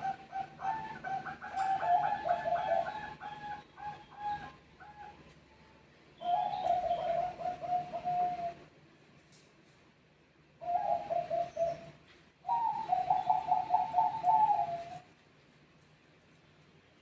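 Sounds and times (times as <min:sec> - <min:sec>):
doves cooing: 0:00.0 - 0:05.3, 0:06.2 - 0:08.7, 0:10.6 - 0:15.1.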